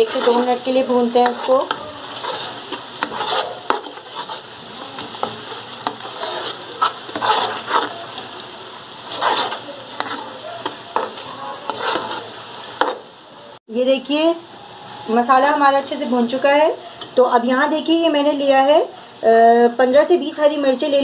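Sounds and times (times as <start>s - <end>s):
spatula stirring and scraping: 0.0s - 13.2s
spices sizzling in hot oil: 0.0s - 21.0s.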